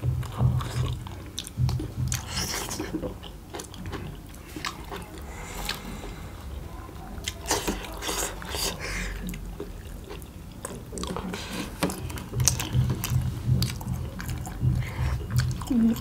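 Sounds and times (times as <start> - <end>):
people chewing wetly: 0.0 - 16.0
mouth clicks and smacks: 7.2 - 16.0.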